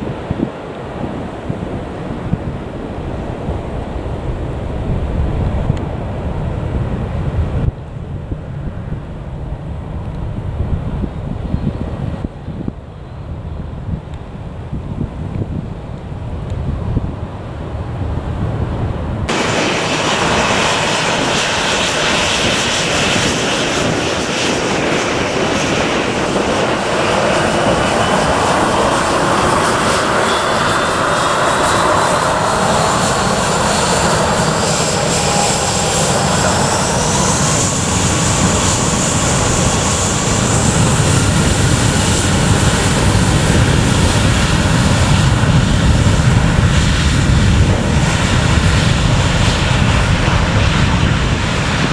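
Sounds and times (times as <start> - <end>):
airliner engines at takeoff: 0.0 - 51.9
rising engine whine: 16.9 - 51.9.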